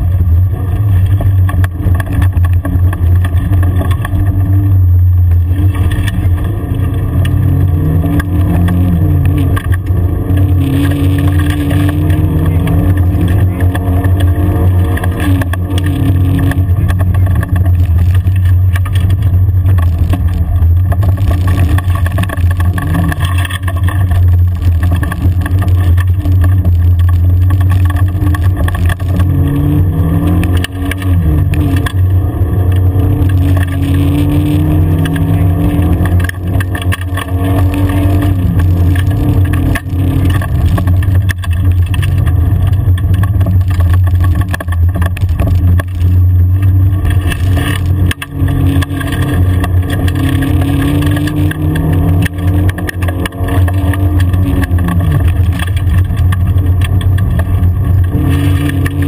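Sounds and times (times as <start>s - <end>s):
car engine drone: 0.0s - 59.0s
tyre and road noise: 0.0s - 59.0s.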